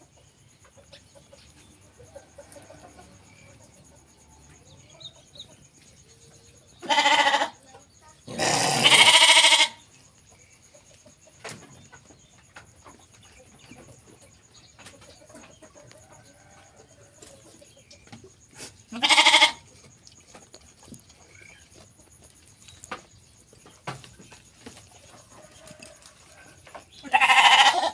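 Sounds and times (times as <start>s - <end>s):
sheep bleating: 6.8s - 7.6s, 8.3s - 9.8s, 18.9s - 19.6s, 27.0s - 27.9s.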